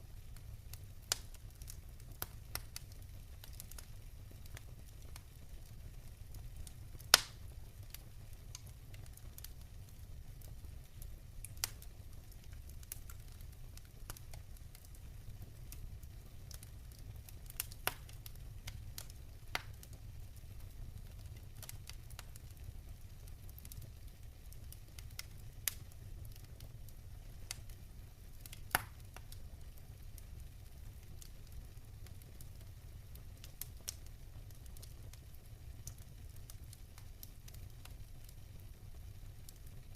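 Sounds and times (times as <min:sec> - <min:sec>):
faint patter of rain: 0:00.0 - 0:39.9
wood fire crackling: 0:00.0 - 0:39.9
sharp pops of fire: 0:00.4 - 0:09.6, 0:10.4 - 0:20.1, 0:24.6 - 0:27.8, 0:28.4 - 0:29.4.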